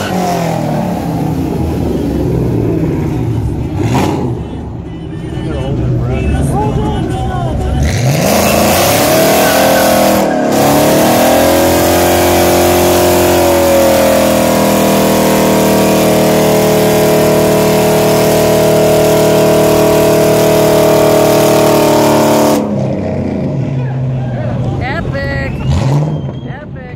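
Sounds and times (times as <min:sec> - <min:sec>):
car engine at high revs: 0:00.0 - 0:04.8, 0:07.7 - 0:26.6
tyres spinning on asphalt: 0:07.8 - 0:26.8.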